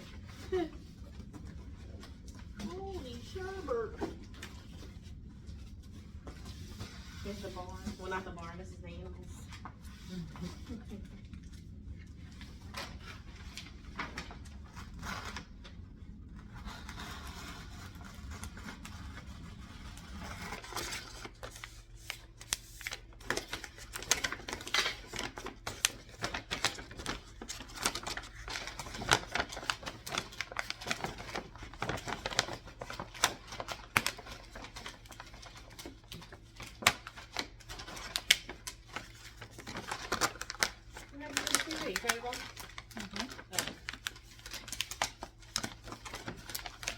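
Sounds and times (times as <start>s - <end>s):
paper crinkling and tearing: 16.4s - 46.9s.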